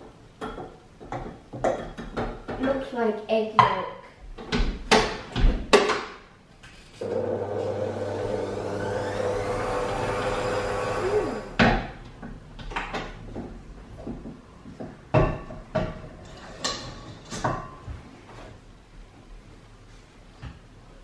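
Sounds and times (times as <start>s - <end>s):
kitchen items knocking and clattering: 0.0s - 2.9s, 3.6s - 6.3s, 11.6s - 18.1s
kitchen appliance motor hum: 7.0s - 11.6s.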